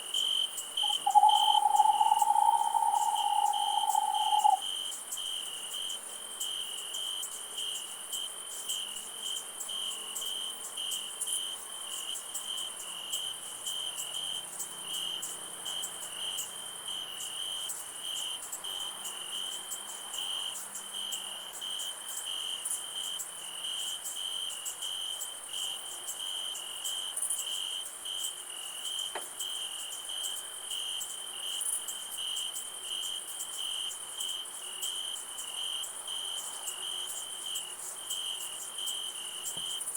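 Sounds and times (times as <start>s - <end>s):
crickets chirping: 0.0s - 39.9s
high insect trill: 0.2s - 5.2s.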